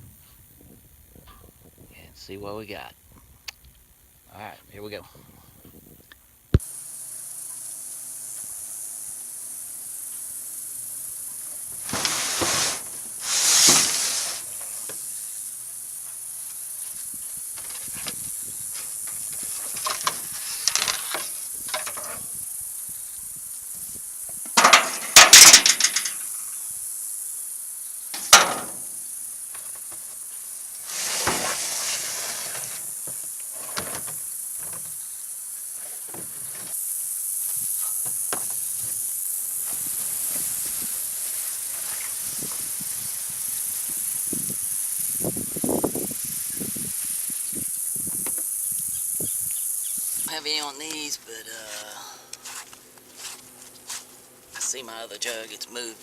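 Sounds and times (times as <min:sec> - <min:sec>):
steady high hiss: 0:00.0 - 0:56.0
kayak gear scraping and clattering: 0:11.8 - 0:15.0, 0:18.8 - 0:22.2, 0:30.9 - 0:35.0.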